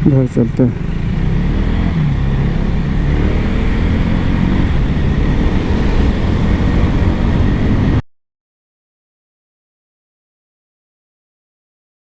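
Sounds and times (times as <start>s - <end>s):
motorcycle engine running: 0.0s - 8.0s
wind buffeting microphone: 1.0s - 8.0s.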